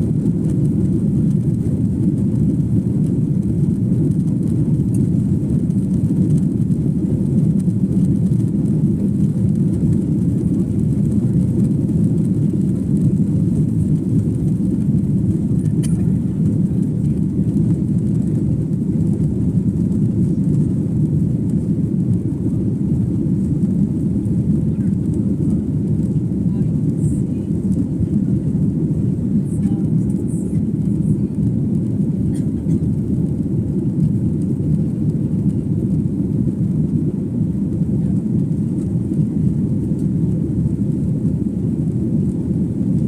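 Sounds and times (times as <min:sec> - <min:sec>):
jet engines rumbling in cabin: 0:00.0 - 0:43.0.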